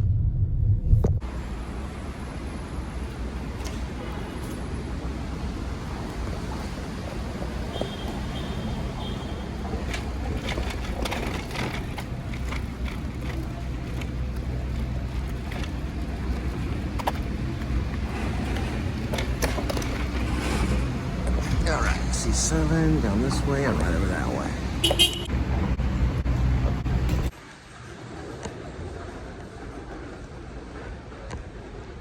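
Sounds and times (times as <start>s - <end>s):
low rumble: 0.0s - 1.5s.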